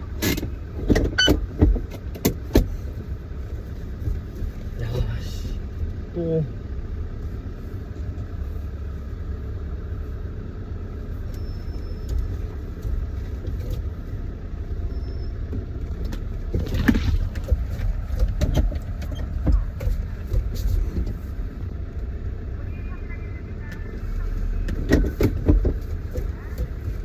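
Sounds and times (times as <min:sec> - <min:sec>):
vehicle engine and road noise: 0:00.0 - 0:27.0
knocks and clicks: 0:15.6 - 0:21.2.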